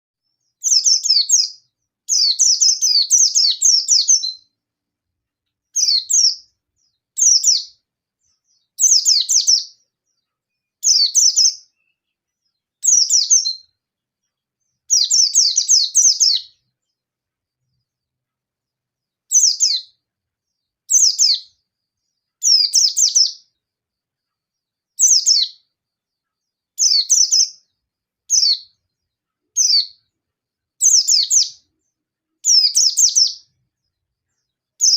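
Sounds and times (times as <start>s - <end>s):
bird fast high twittering: 0.6s - 4.4s, 5.8s - 6.4s, 7.2s - 7.8s, 8.8s - 9.7s, 10.8s - 12.0s, 12.8s - 13.6s, 14.9s - 16.6s, 19.3s - 19.9s, 20.9s - 21.5s, 22.4s - 23.4s, 25.0s - 25.6s, 26.8s - 27.6s, 28.3s - 28.7s, 29.6s - 30.0s, 30.8s - 31.6s, 32.4s - 33.4s.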